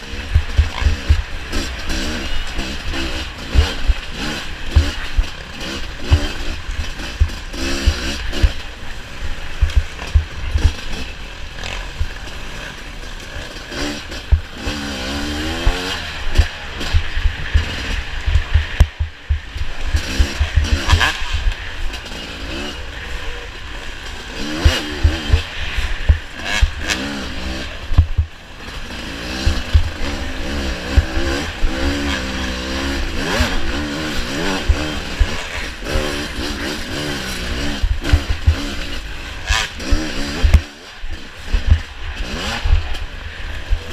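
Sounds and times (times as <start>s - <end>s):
racing engine revving: 0.0s - 43.9s
knocks and thumps from track: 9.6s - 10.9s, 16.3s - 21.6s, 24.6s - 26.8s, 27.9s - 28.4s, 29.4s - 30.0s, 40.4s - 40.6s.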